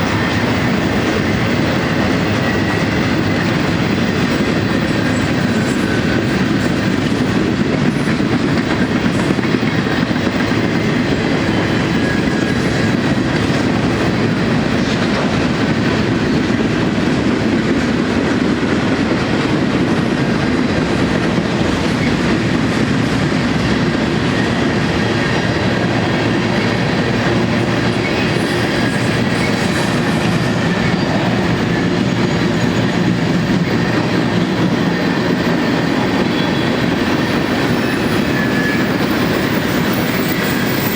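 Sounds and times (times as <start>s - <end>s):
freight train wheels rumbling: 0.0s - 40.9s.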